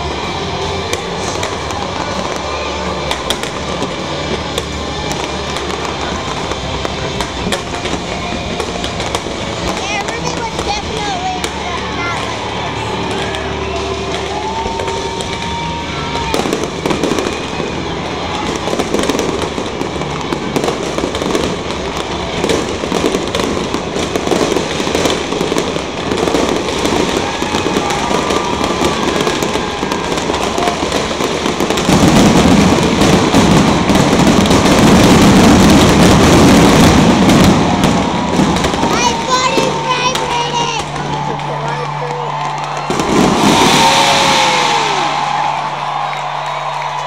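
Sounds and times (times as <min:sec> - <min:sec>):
fireworks bursting and crackling: 0:00.0 - 0:47.0.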